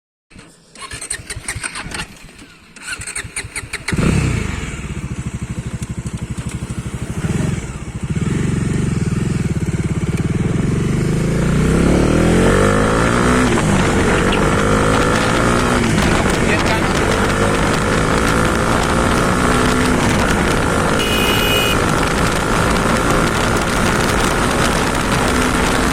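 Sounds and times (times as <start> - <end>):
motorcycle engine idling and revving: 0.3 - 25.9
electric starter cranking engine: 0.4 - 4.8.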